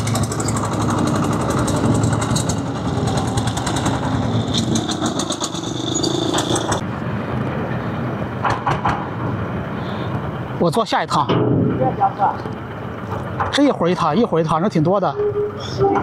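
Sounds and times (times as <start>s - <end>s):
small engine running with ticking: 0.0s - 6.8s
low engine rumble: 0.0s - 16.0s.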